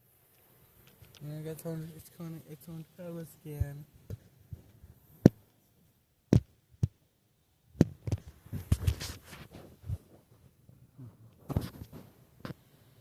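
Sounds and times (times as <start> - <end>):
sharp knocks and thumps: 6.3 - 7.0, 7.8 - 9.2.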